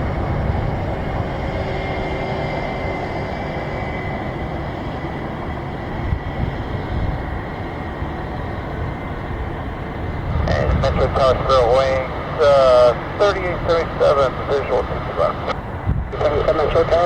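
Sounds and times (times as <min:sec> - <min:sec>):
jet engine with high whine: 0:00.0 - 0:17.0
wind rumble on microphone: 0:00.0 - 0:17.0.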